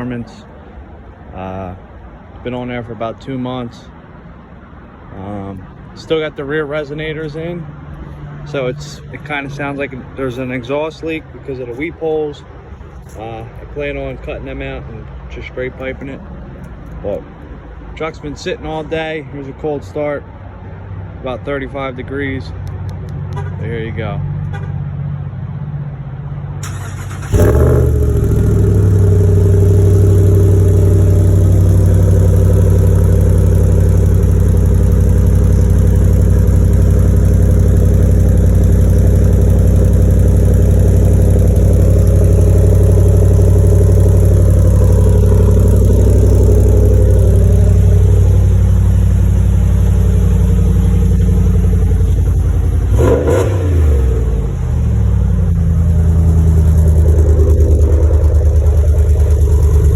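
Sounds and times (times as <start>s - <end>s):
engine starting and idling: 26.6s - 59.9s.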